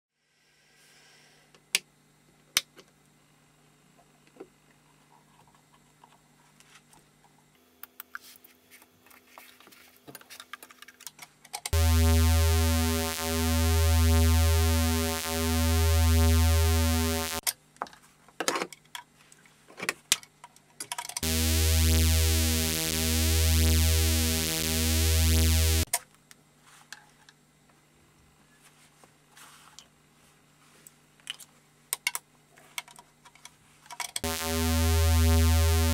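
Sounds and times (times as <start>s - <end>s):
buzzy low synth drone: 11.8s - 17.4s, 21.2s - 25.9s, 34.2s - 35.9s.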